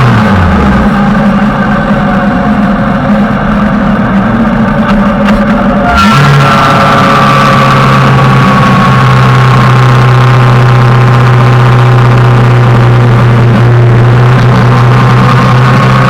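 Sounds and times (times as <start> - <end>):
motorcycle engine running steadily: 0.0 - 16.0.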